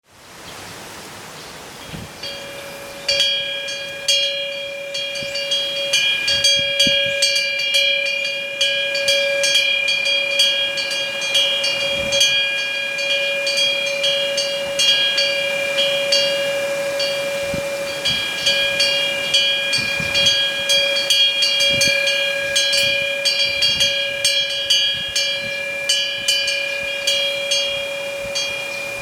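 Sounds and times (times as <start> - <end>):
metal wind chime ringing: 2.2 - 29.0.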